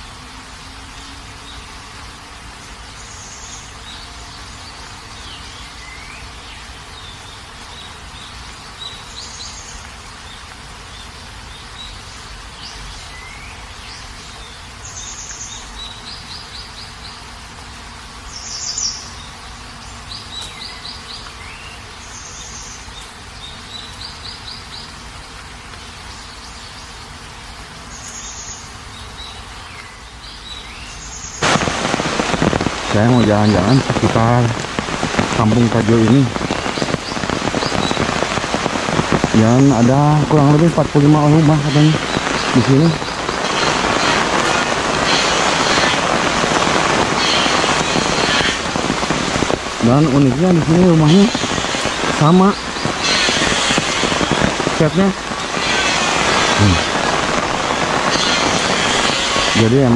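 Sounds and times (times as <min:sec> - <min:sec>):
birds chirping and trilling: 0:00.0 - 0:59.9
steady background hiss: 0:00.0 - 0:59.9
sudden loud noise: 0:31.4 - 0:59.9.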